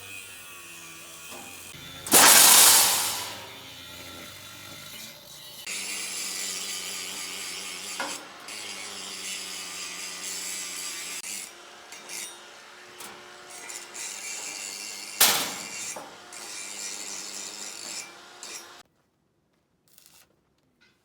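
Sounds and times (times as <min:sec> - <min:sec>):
sharp loud knock: 0:02.1 - 0:03.6.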